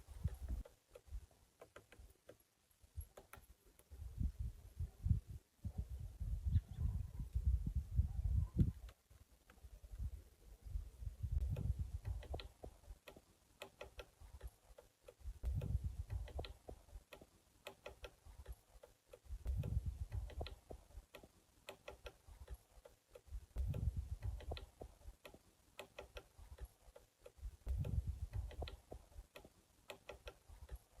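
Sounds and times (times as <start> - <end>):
woodpecker tapping on tree: 0.1 - 4.0, 11.4 - 31.0.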